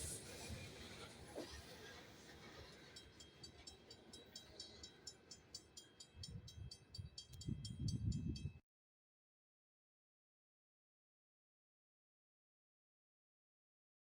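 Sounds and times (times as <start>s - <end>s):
train wheels clicking on rails: 0.0s - 8.2s
low train rumble: 0.0s - 8.6s.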